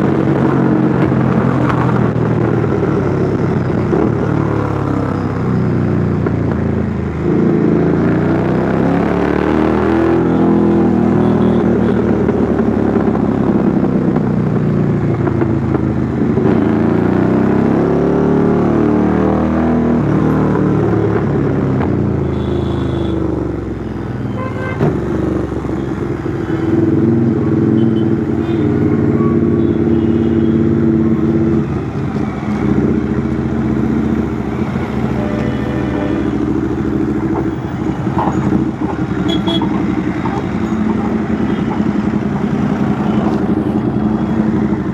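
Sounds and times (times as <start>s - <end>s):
motorcycle exhaust note: 20.8s - 44.9s.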